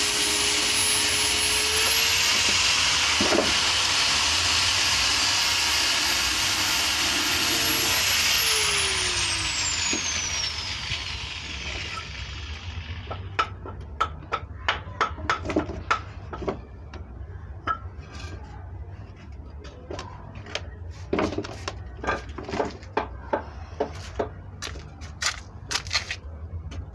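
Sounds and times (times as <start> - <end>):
power tool motor whining: 0.0 - 13.3.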